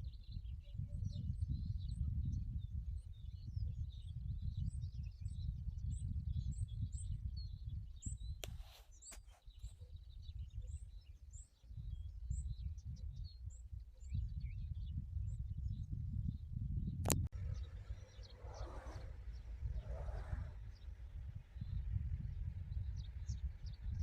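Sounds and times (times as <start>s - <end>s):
small birds chirping: 0.0s - 16.5s, 17.1s - 24.0s
low rumble: 17.3s - 24.0s.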